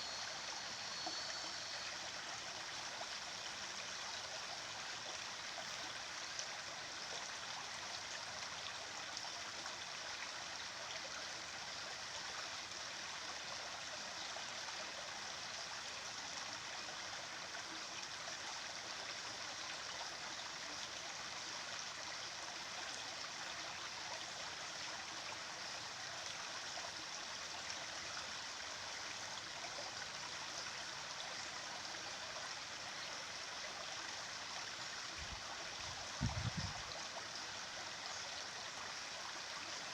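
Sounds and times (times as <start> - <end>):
stream of running water: 0.0 - 39.9.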